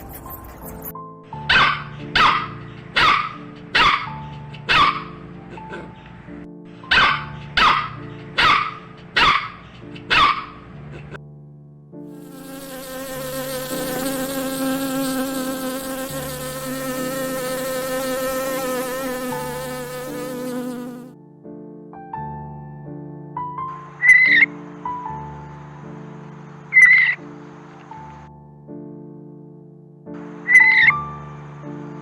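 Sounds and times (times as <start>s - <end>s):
sharp animal calls: 1.5s - 5.1s, 6.9s - 10.6s
flying insect buzzing: 12.2s - 21.2s.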